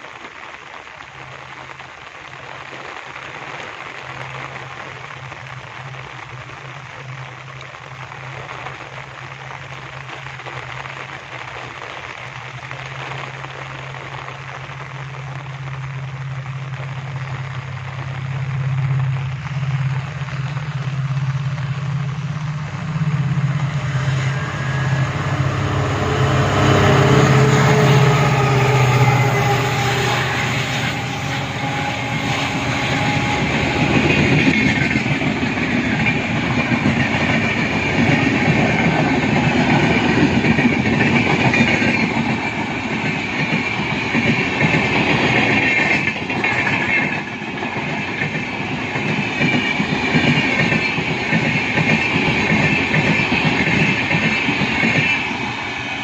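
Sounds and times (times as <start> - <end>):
diesel locomotive engine hum: 0.7 - 56.0
high-pitched rolling whine: 16.1 - 56.0
wheels clacking over rail joints: 18.5 - 56.0.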